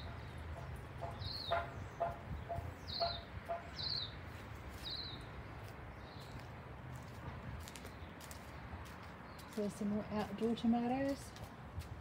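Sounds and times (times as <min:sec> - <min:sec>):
lower short bird calls: 0:01.2 - 0:04.2
short high bird chirps: 0:02.9 - 0:04.1.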